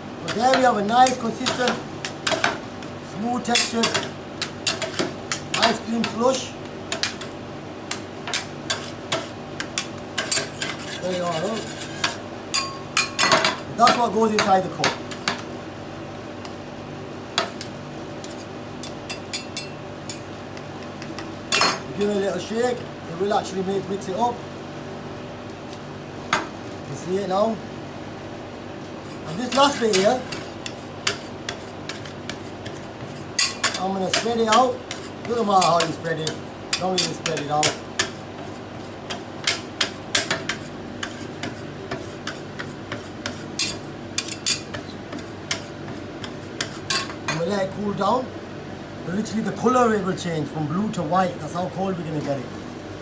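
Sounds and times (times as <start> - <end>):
refrigeration compressor humming: 0.0 - 53.0
metal scrapers on ice pan: 10.2 - 12.2.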